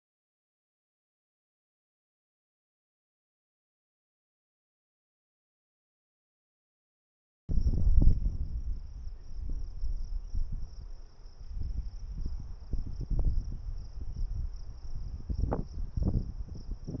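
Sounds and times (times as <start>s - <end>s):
crickets chirping: 7.5s - 17.0s.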